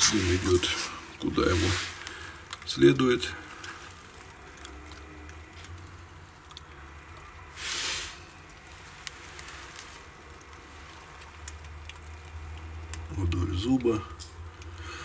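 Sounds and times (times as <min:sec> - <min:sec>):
fire hiss: 0:00.0 - 0:04.3, 0:06.8 - 0:11.4
wood fire crackling: 0:00.0 - 0:15.0.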